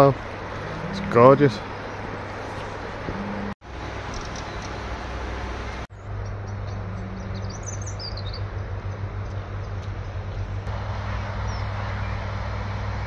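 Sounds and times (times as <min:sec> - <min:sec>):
outdoor background rumble: 0:00.0 - 0:13.0
small bird chirping: 0:04.1 - 0:04.8, 0:06.0 - 0:10.6.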